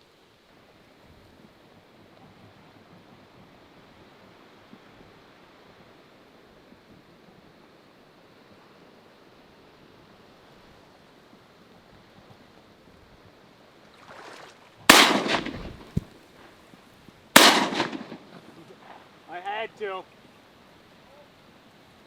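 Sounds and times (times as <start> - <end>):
faint wind hiss: 0.0 - 22.0
shotgun shots: 14.9 - 16.1, 17.4 - 18.5.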